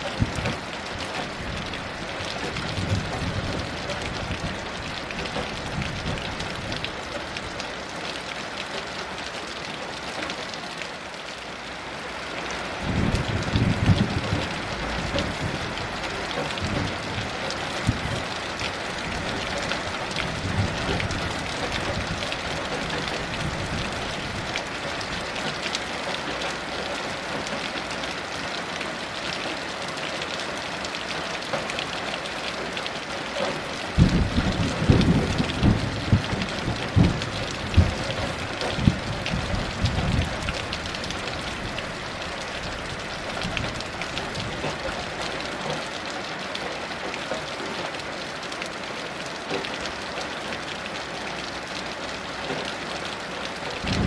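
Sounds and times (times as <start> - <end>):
heavy rain falling: 0.0 - 54.0
thunder rumbling and clapping: 2.4 - 6.9, 12.8 - 25.6, 33.9 - 41.9, 53.7 - 54.0.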